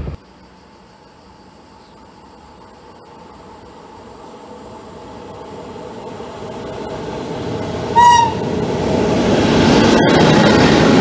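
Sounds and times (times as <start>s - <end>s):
train rail noise: 0.9s - 11.0s
train horn toot: 7.9s - 8.4s.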